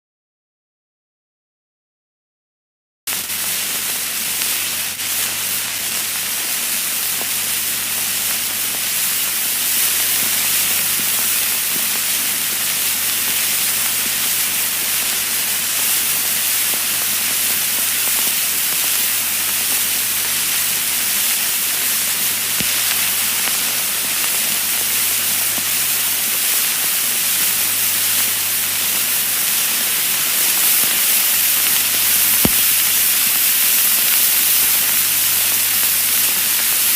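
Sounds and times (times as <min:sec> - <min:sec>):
vinyl record hiss: 0:03.1 - 0:36.9
vinyl clicks and pops: 0:22.6 - 0:23.5, 0:31.7 - 0:33.0.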